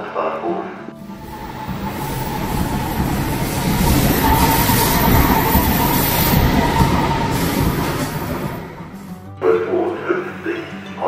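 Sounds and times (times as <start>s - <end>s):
thin whine: 0.9s - 9.4s
high-speed train rushing past: 1.0s - 9.8s.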